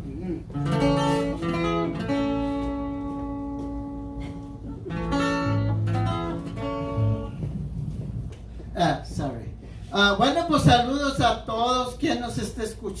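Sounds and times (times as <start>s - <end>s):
low guitar notes: 0.0s - 9.7s
acoustic guitar strumming chords: 0.4s - 8.3s.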